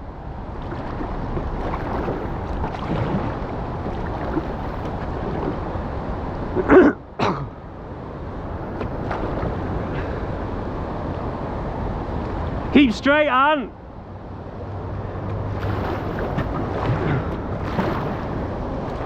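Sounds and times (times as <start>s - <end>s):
wind on microphone: 0.0s - 6.7s
river water rushing: 0.1s - 19.0s.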